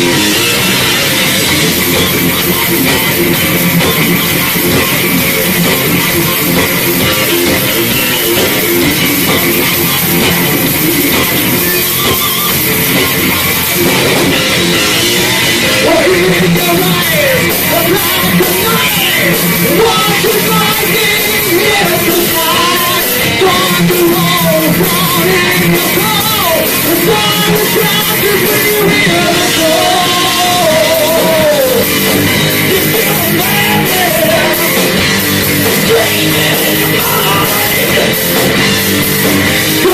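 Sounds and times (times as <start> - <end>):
heavy metal band playing: 0.0 - 39.9
person singing: 15.6 - 38.7, 39.5 - 39.9.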